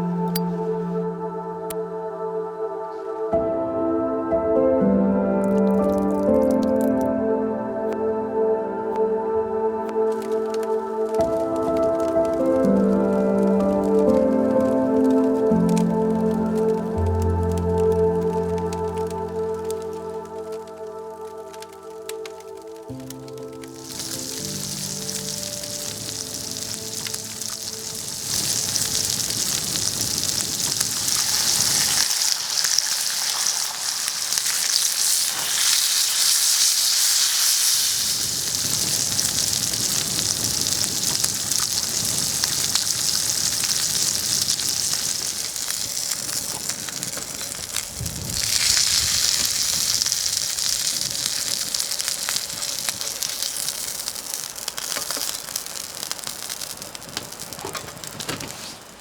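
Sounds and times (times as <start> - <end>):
burgers sizzling on a griddle: 23.6 - 59.0.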